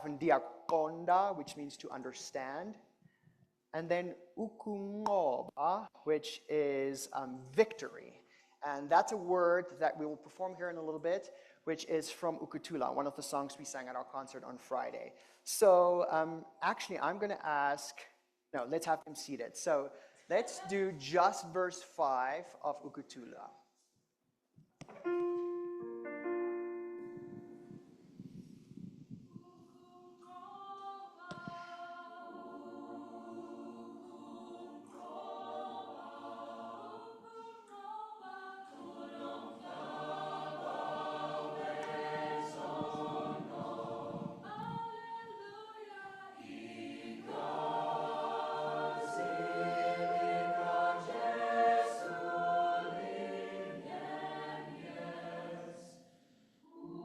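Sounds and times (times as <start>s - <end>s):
choir singing a cappella: 29.3s - 57.0s.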